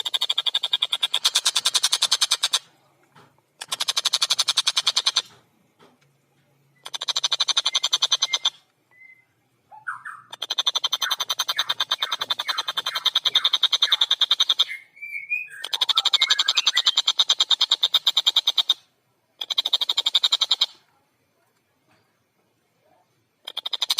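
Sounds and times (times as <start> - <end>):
kingfisher chattering rattles: 0.0 - 2.7, 3.6 - 5.3, 6.8 - 8.5, 23.4 - 23.9.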